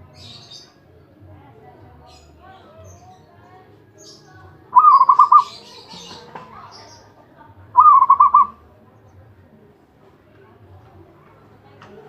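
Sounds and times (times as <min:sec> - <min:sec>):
dove cooing: 0:04.8 - 0:05.6, 0:07.8 - 0:08.6.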